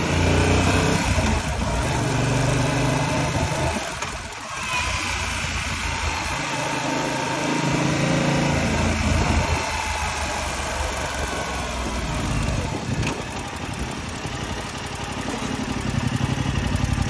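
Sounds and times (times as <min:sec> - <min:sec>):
motorcycle engine running: 0:00.0 - 0:17.0
wind noise on microphone: 0:08.4 - 0:14.6.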